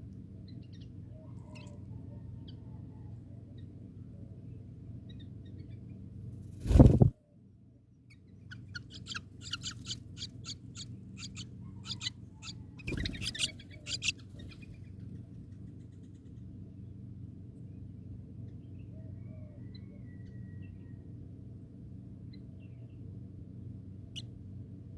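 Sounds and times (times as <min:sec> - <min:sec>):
steady low hum: 0:00.0 - 0:19.0
bird sharp high-pitched calls: 0:08.5 - 0:14.8.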